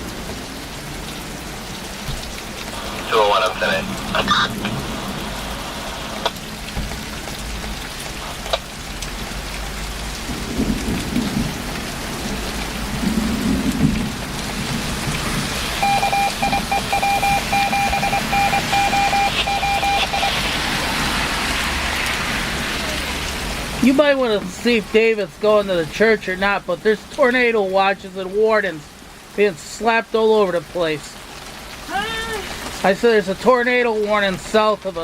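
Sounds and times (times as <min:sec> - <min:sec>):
steady rain: 0:00.0 - 0:35.0
low rolls of thunder: 0:10.2 - 0:15.6
electronic beeping on two pitches: 0:15.8 - 0:20.4.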